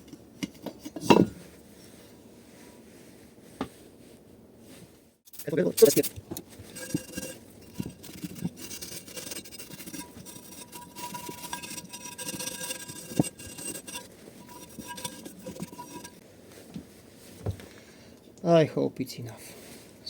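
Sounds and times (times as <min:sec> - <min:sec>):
scrubbing and scraping engine parts: 0:00.0 - 0:02.0, 0:05.3 - 0:16.2.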